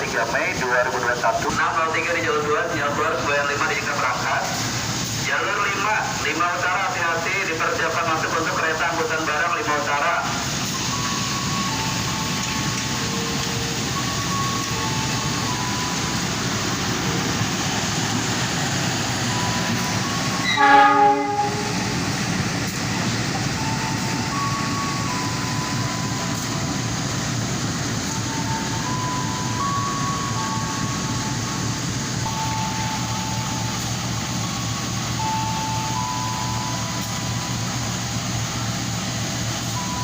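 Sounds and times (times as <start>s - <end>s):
train wheels rumbling on rail: 0.0s - 40.0s
train horn blast: 20.4s - 21.9s.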